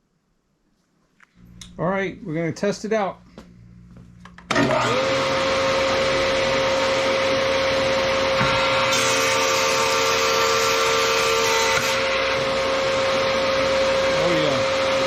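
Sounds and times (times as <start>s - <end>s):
planer whining: 4.5s - 15.0s.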